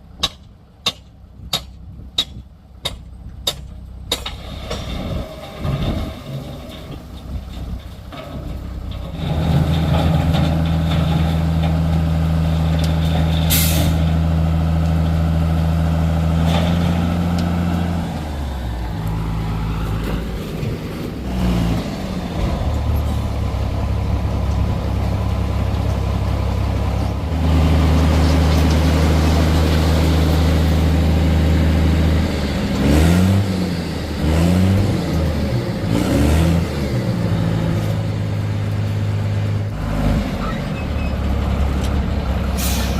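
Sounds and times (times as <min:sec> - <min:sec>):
heavy diesel engine running: 0:00.0 - 0:42.9
sharp air hiss: 0:42.6 - 0:42.9.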